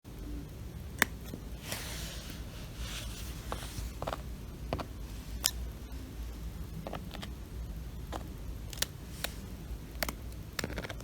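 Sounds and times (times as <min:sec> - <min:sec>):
soft rustling on straw mat: 0:01.6 - 0:05.4.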